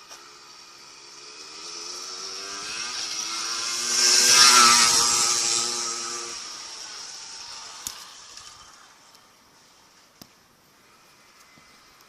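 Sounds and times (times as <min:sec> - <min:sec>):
small petrol engine passing: 0:00.0 - 0:10.0, 0:10.8 - 0:12.0.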